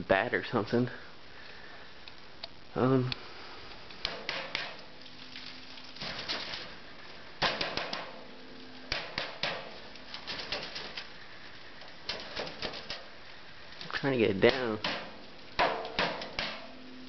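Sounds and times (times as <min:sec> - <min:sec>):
bird wings flapping: 0:04.1 - 0:06.8, 0:07.4 - 0:08.2, 0:08.8 - 0:11.2, 0:11.8 - 0:13.2
bird scratching in chimney: 0:09.7 - 0:11.2, 0:12.0 - 0:13.1.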